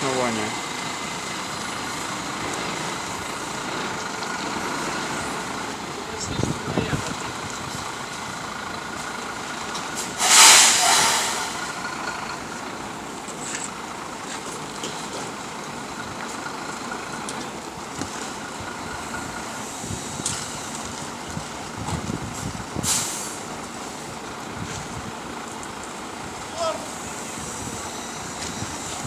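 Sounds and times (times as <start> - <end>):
road repair machine running: 0.0 - 29.0
air hiss: 10.0 - 11.9, 22.8 - 23.4.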